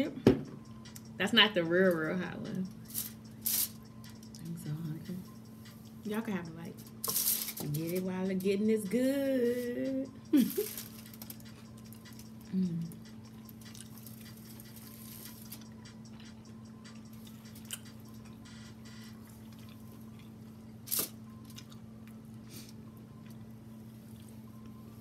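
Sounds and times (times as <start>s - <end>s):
steady low hum: 0.0s - 25.0s
person humming mm: 12.5s - 13.0s
wet chewing: 19.3s - 20.4s.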